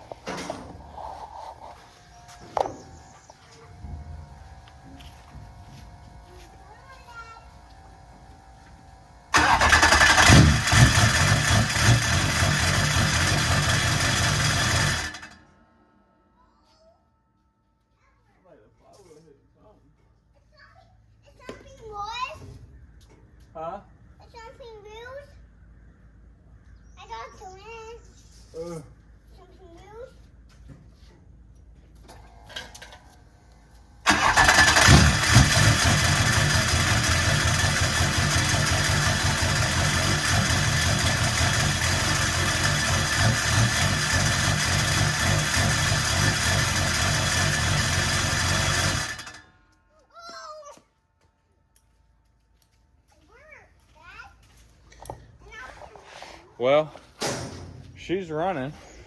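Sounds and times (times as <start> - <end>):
diesel engine cranking on starter: 9.3 - 15.6, 34.0 - 49.6.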